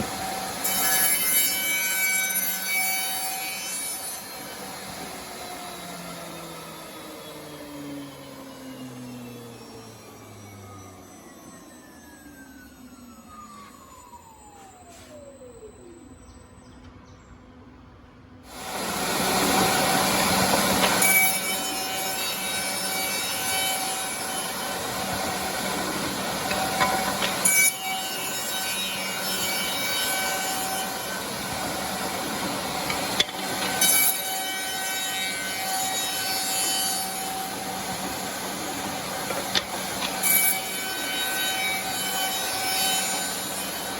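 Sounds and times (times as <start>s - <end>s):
woodworking machine cutting: 0.0s - 15.8s, 18.5s - 43.9s
motor winding down whine: 4.9s - 16.7s.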